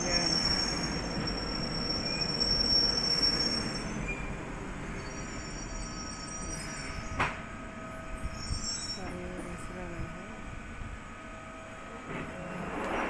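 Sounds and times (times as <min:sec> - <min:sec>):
high-pitched wheel squeal: 0:00.0 - 0:07.1, 0:08.2 - 0:09.0
trains rumbling: 0:00.0 - 0:13.0.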